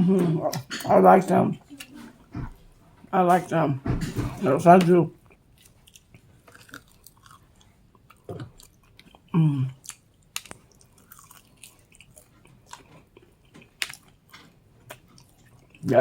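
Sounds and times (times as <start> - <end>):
person chewing crunchy food: 4.3 - 15.9
short vocal sounds: 9.4 - 9.8.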